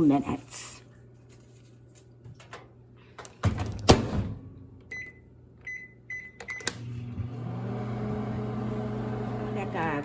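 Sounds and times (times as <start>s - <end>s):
microwave humming: 2.2s - 10.0s
keypad beeps: 4.9s - 6.7s.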